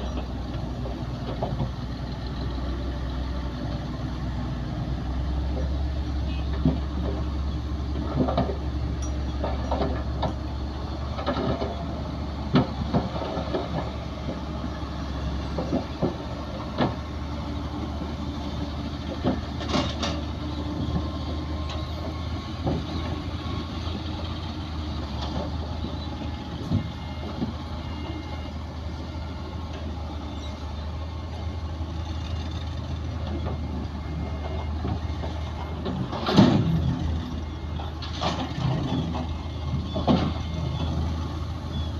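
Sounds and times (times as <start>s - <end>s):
diesel machinery engine drone: 0.0s - 41.9s
metallic clanks and knocks: 8.0s - 10.5s, 19.1s - 21.1s, 34.4s - 36.9s.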